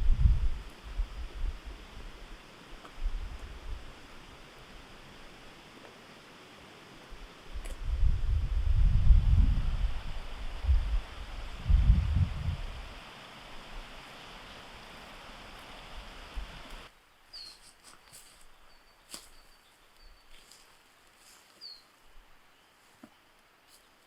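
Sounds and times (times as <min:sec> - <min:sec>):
wind buffeting microphone: 0:00.0 - 0:02.3, 0:07.2 - 0:13.0
high bird chirps: 0:17.3 - 0:17.6.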